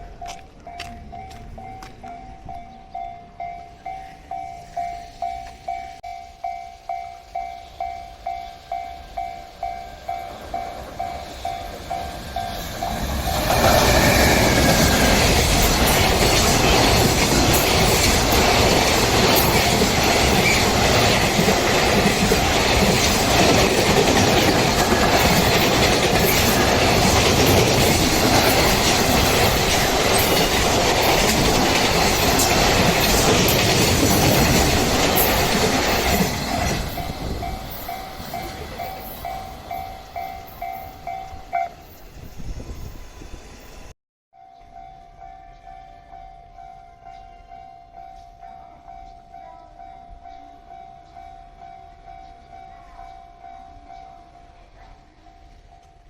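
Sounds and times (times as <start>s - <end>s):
train wheels clattering over rail joints: 11.7s - 39.1s.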